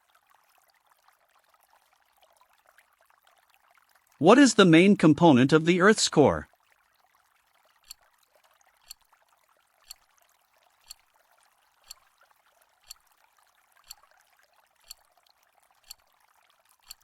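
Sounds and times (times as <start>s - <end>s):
timer ticking: 15.8s - 16.0s.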